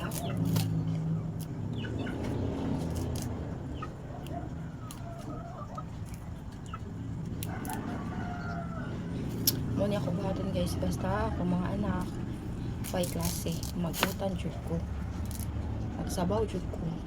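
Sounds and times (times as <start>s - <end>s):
chickens clucking: 0.0s - 12.3s.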